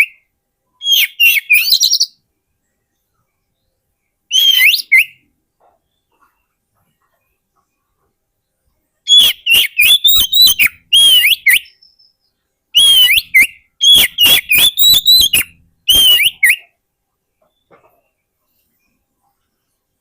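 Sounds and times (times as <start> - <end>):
bird singing whistled notes: 0.0 - 2.3, 3.0 - 5.3, 9.1 - 16.8.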